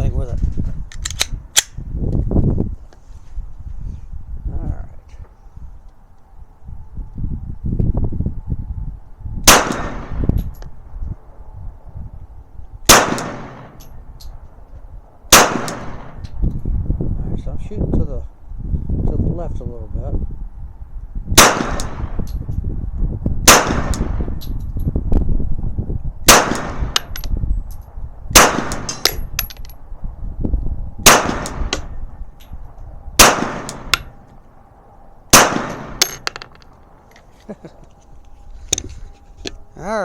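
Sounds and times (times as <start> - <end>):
pistol shots: 9.5 - 10.2, 12.9 - 13.9, 15.3 - 16.2, 21.4 - 22.2, 23.5 - 24.2, 26.3 - 27.1, 28.4 - 29.2, 31.0 - 31.9, 33.2 - 34.1, 35.3 - 36.2.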